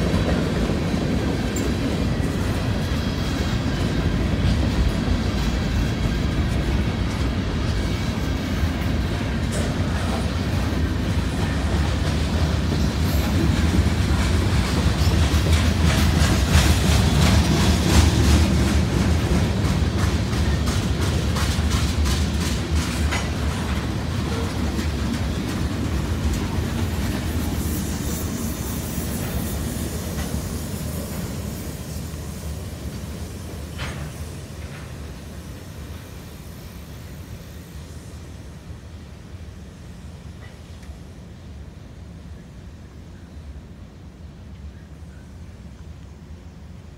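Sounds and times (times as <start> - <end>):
wheels clacking over rail joints: 0.0 - 35.2.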